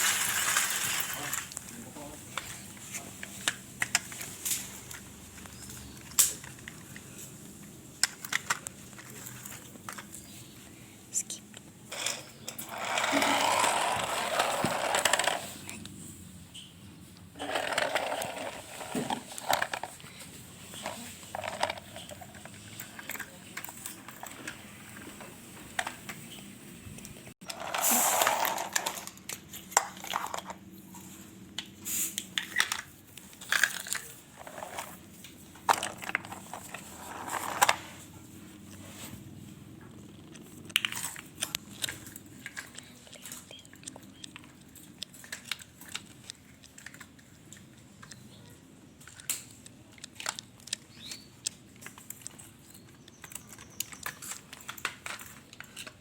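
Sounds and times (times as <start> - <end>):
rustling: 0.0 - 11.0, 30.0 - 48.2
crinkling handling sounds: 0.0 - 16.2, 16.9 - 56.0.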